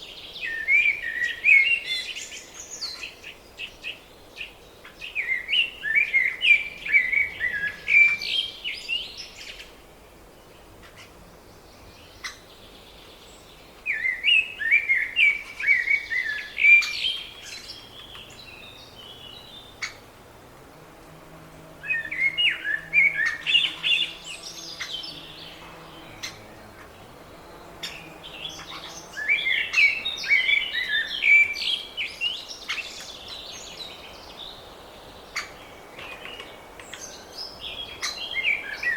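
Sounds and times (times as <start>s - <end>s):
songbird singing repeated notes: 0.0s - 20.2s, 21.0s - 38.9s.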